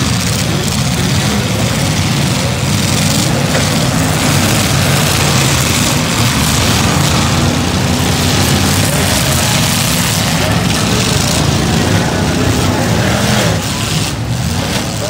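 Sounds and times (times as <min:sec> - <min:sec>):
car engines rumbling: 0:00.0 - 0:15.0.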